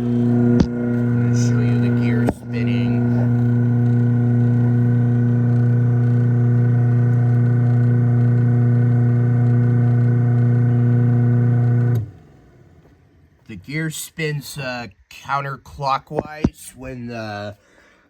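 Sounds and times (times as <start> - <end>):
garage door opener motor hum: 0.0 - 13.2.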